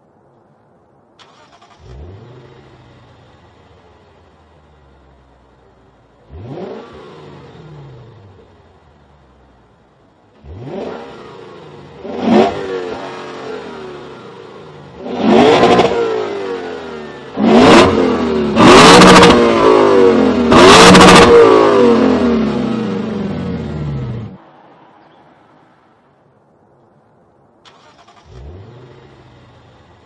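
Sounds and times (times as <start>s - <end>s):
car engine revving: 1.3s - 5.2s, 5.9s - 9.4s, 10.3s - 24.4s, 27.7s - 30.0s.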